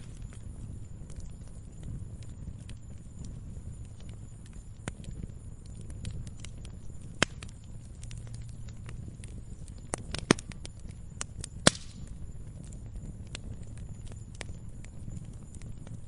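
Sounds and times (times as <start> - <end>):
low rumble of flames: 0.0 - 16.0
wood popping and snapping: 5.8 - 10.8, 11.6 - 12.1.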